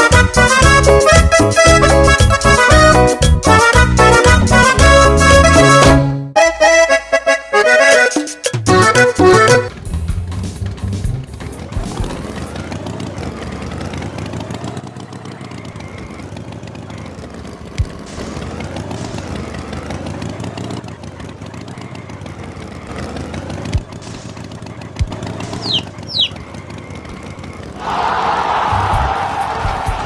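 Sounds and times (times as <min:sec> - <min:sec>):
cartoon tractor engine: 0:00.0 - 0:30.0
quick falling whistles: 0:25.6 - 0:26.4.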